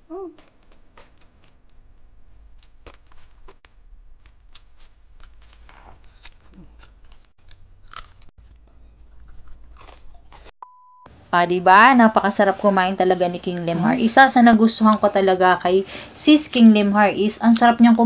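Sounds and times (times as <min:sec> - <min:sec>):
person humming: 0:00.0 - 0:00.5
crunching and chewing: 0:00.4 - 0:10.6.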